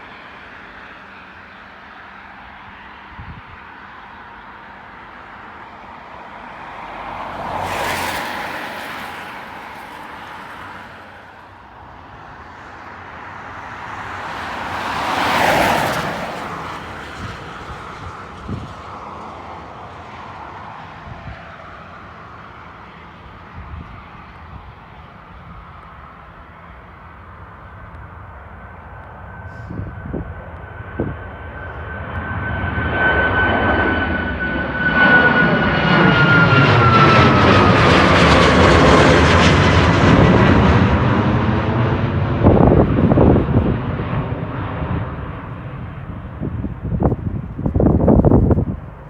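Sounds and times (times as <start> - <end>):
vehicles passing by: 0.0 - 23.9, 35.2 - 49.0
outdoor background noise: 0.0 - 49.0.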